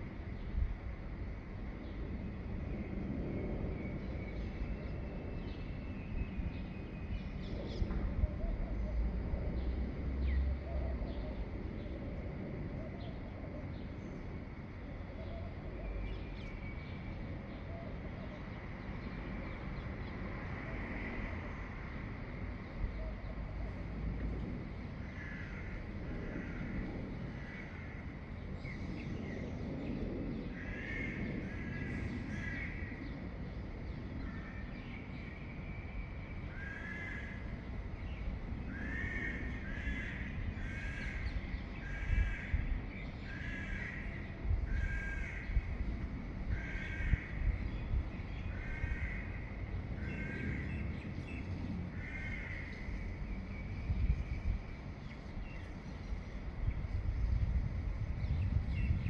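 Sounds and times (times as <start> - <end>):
steady low rumble: 22.4 - 35.6, 36.3 - 59.0.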